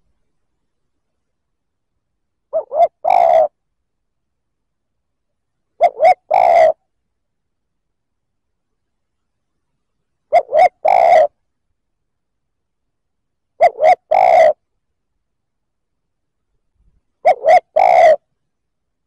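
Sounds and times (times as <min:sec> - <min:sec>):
dove cooing: 0:02.5 - 0:03.6, 0:05.8 - 0:06.8, 0:10.3 - 0:11.4, 0:13.6 - 0:14.6, 0:17.2 - 0:18.2.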